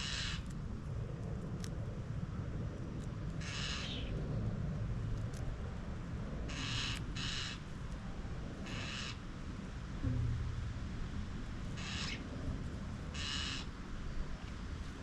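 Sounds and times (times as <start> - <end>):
fledgling starlings screeching: 0.0 - 0.5, 3.4 - 4.1, 6.5 - 7.6, 8.6 - 9.2, 11.8 - 12.2, 13.2 - 13.7
steady low rumble: 0.0 - 15.0.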